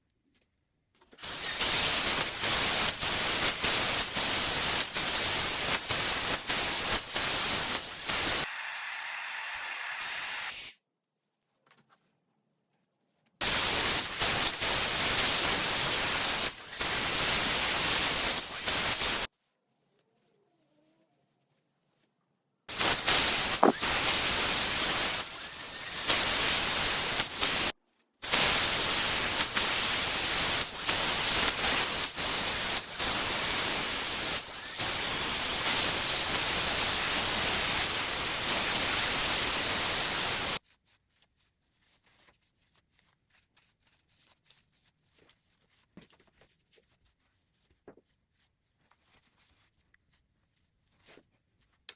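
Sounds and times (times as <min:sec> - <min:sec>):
hair dryer blowing: 0:07.6 - 0:10.7
faint handling sounds: 0:11.2 - 0:13.4, 0:19.3 - 0:22.6, 0:27.8 - 0:28.2, 0:40.6 - 0:51.9.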